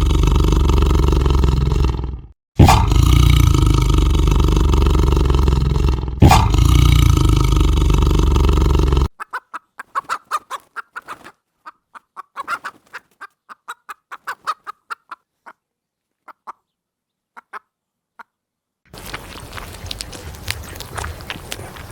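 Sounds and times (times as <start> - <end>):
chickens clucking: 9.2 - 18.4.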